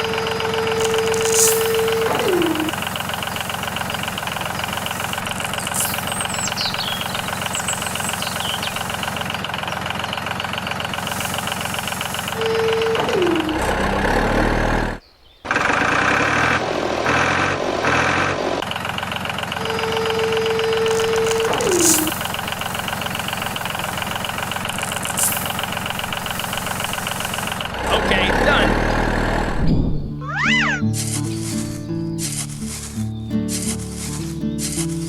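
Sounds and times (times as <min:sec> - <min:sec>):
engine knocking rhythmically: 0:00.0 - 0:29.7
tone sliding down in pitch: 0:00.8 - 0:02.8, 0:12.4 - 0:14.0, 0:19.7 - 0:22.2, 0:29.6 - 0:30.8.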